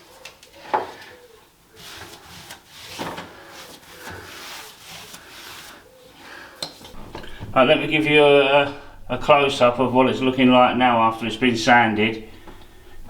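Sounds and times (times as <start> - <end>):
sandpaper rubbing on ceiling: 1.8 - 6.2.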